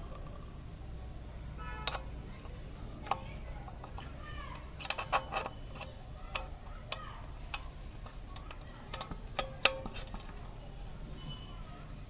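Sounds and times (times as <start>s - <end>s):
metal tools clinking: 1.8s - 10.4s.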